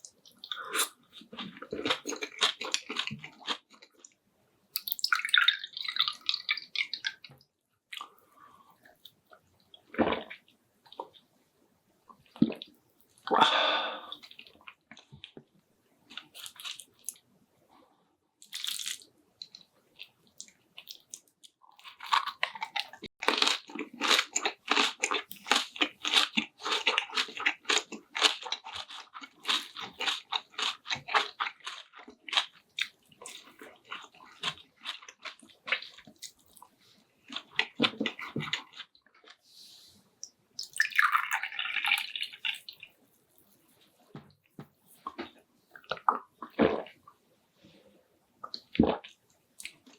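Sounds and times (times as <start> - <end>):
wet crunchy chewing: 20.4 - 36.7.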